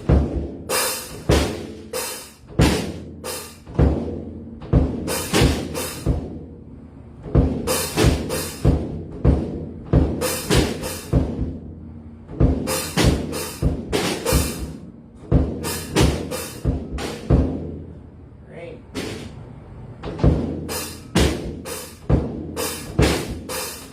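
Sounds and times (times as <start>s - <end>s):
low drum hits: 12.3s - 17.8s.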